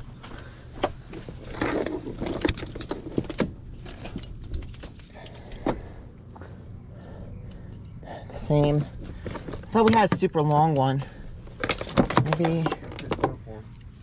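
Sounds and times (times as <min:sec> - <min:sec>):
metal hooks clinking: 0:01.5 - 0:05.6, 0:07.4 - 0:14.0.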